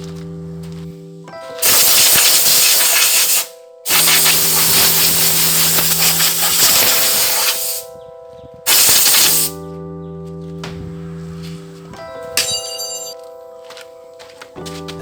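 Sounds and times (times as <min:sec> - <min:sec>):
spray paint hissing: 0:01.6 - 0:07.9, 0:08.7 - 0:09.6.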